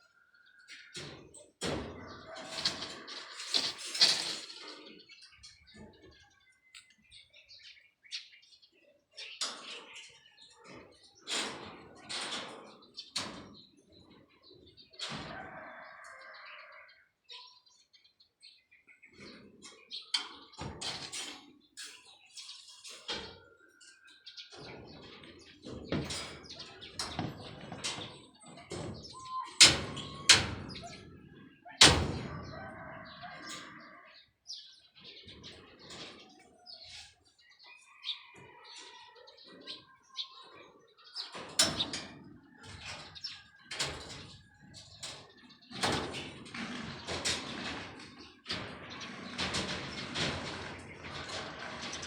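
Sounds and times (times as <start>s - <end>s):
sharp knocks and clatter: 1.0s - 4.7s, 24.5s - 31.0s, 45.0s - 52.0s
birds chirping: 21.5s - 52.0s.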